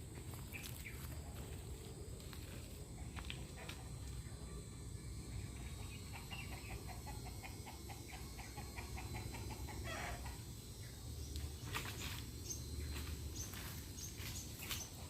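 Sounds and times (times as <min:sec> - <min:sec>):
animal rapid repeated call notes: 0:05.8 - 0:10.5.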